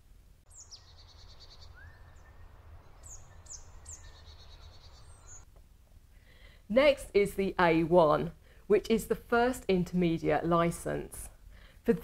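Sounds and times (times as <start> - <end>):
small birds chirping: 0.5 - 5.5.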